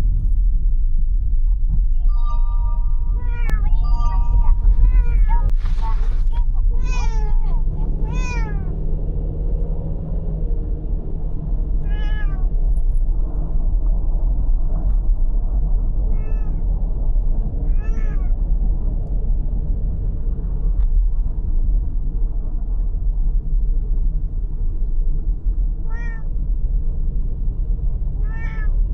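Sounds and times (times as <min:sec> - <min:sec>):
car cabin road rumble: 0:00.0 - 0:28.9
cat meowing: 0:03.2 - 0:05.5, 0:06.3 - 0:08.8, 0:11.8 - 0:12.5, 0:16.1 - 0:16.6, 0:17.7 - 0:18.3, 0:25.8 - 0:26.3, 0:28.2 - 0:28.8.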